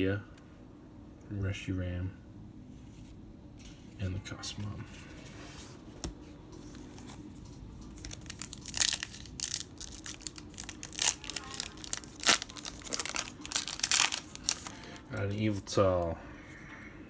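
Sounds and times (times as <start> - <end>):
foil wrapper crinkling and tearing: 7.8 - 15.8.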